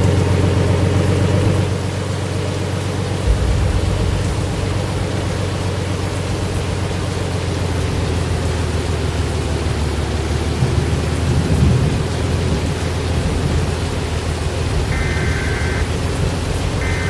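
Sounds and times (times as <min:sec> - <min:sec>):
steady rain: 0:00.0 - 0:17.0
low rumble of thunder: 0:03.0 - 0:09.9, 0:10.6 - 0:17.0.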